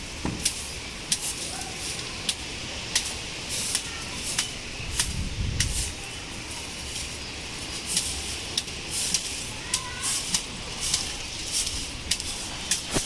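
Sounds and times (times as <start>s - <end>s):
heavy rain hiss: 0.0s - 13.0s
wind gust on microphone: 5.1s - 6.0s.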